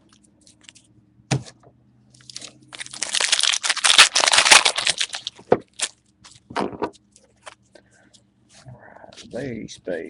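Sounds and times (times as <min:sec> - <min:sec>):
card pack wrapper tearing and crinkling: 0:02.2 - 0:06.0.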